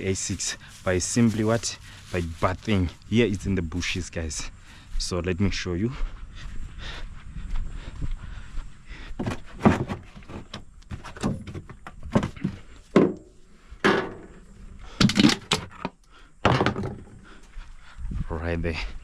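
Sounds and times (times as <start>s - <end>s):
thuds knocks and scrapes: 9.2s - 17.3s.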